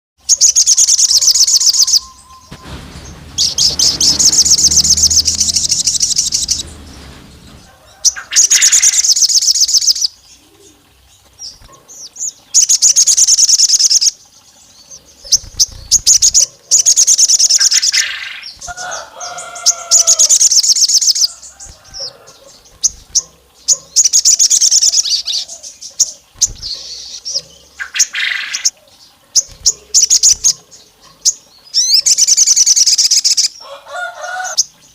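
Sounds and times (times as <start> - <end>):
songbird high rapid trills: 0.4 - 10.1.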